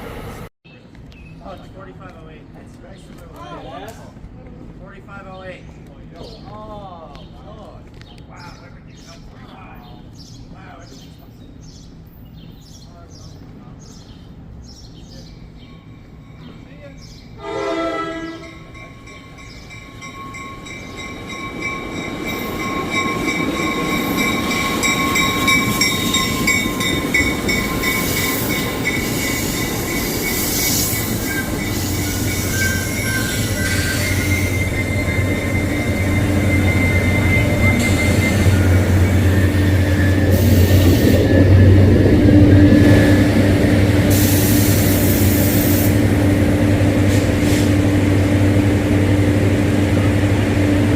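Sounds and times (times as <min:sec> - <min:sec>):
train rumbling through station: 0:00.0 - 0:50.9
train horn: 0:17.4 - 0:18.8, 0:30.5 - 0:41.2
wheel squeals: 0:19.6 - 0:41.9.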